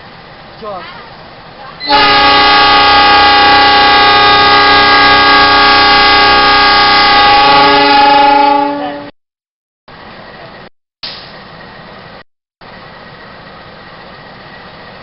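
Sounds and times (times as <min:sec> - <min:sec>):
locomotive air horn blast: 0:01.8 - 0:09.1.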